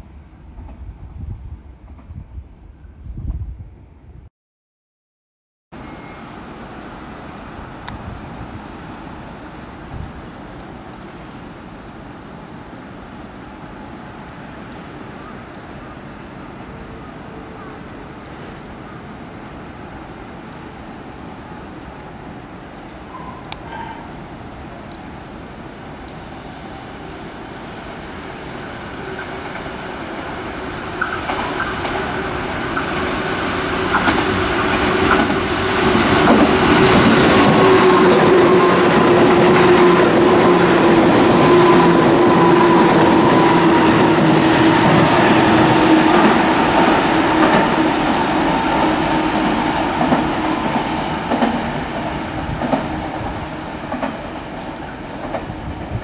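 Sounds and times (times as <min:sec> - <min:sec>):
train hum: 0:00.0 - 0:04.2, 0:05.8 - 0:56.0
wheels clicking over rail joints: 0:28.6 - 0:41.0, 0:45.9 - 0:56.0.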